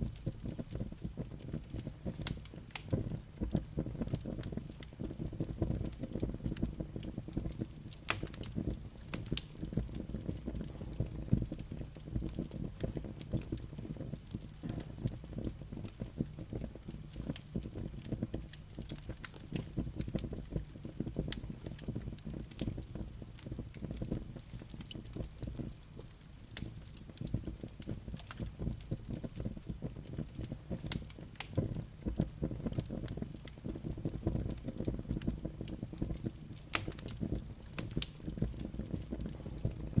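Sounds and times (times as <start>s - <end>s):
crackles and pops of burning logs: 0.0s - 40.0s
low rumble of flames: 0.0s - 40.0s.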